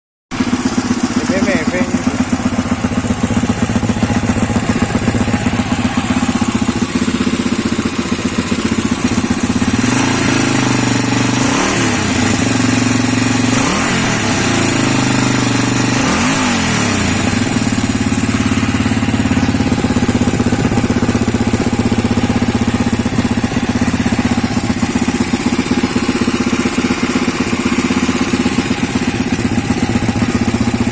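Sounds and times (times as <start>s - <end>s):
motorcycle engine idling and revving: 0.3s - 30.9s.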